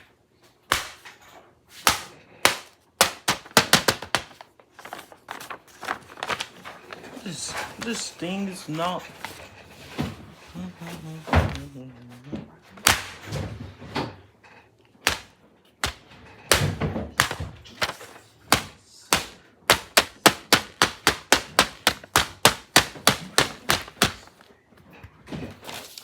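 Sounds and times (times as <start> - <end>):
hands tapping paper laptop: 0.7 - 1.1, 1.8 - 8.4, 12.8 - 13.3, 15.0 - 24.5.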